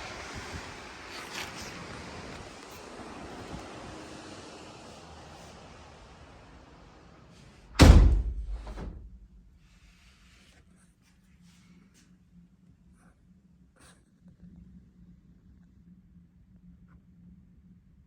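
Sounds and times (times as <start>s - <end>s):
storm wind: 0.0s - 9.6s
door slamming shut: 7.7s - 9.3s.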